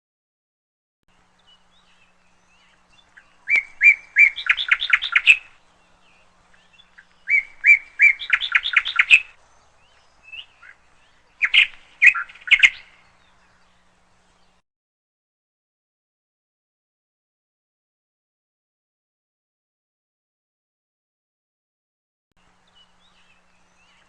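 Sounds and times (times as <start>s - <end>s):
canary chirping: 1.5s - 5.6s, 6.6s - 13.0s.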